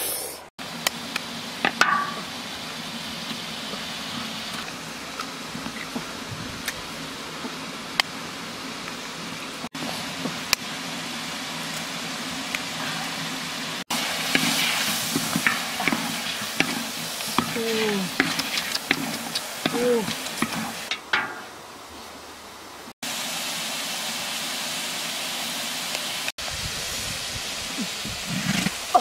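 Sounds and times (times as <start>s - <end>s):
food sizzling in a wok: 0.0s - 7.7s, 9.1s - 21.6s, 23.0s - 29.0s
wooden spatula scraping a wok: 14.0s - 21.0s.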